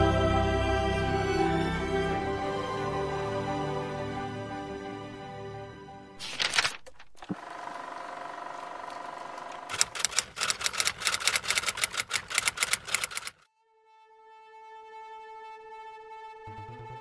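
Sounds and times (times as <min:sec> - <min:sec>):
fast mechanical clicks: 0:06.2 - 0:13.4.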